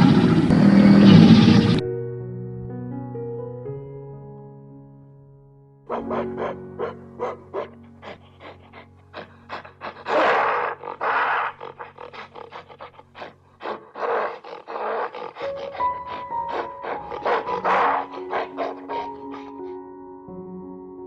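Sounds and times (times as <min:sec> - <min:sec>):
soft background music: 0:01.5 - 0:21.0
animal's rough harsh calls: 0:05.9 - 0:19.7.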